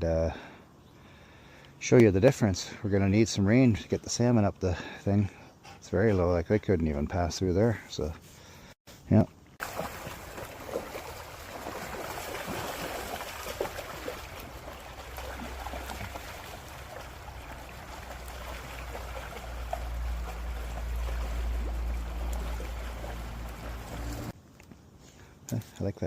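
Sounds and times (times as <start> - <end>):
stream water rushing: 9.6 - 24.3.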